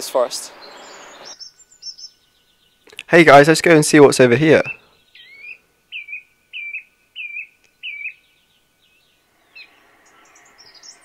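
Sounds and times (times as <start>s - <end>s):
high bird twittering: 0.2s - 3.1s, 4.5s - 11.0s
bird call notes: 4.6s - 8.4s.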